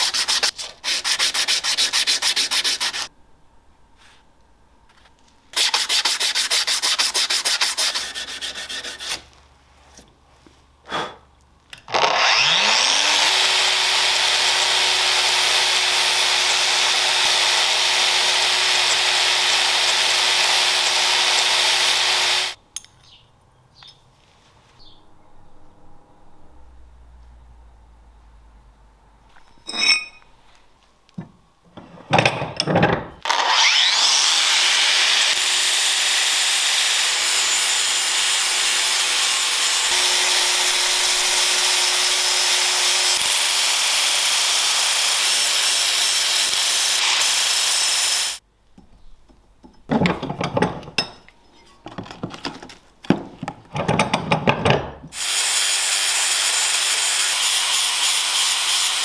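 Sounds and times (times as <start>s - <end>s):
rubbing or scraping strokes: 0.0s - 3.1s, 5.6s - 10.1s
power tool whining: 11.9s - 22.6s, 33.2s - 48.4s, 55.2s - 59.0s.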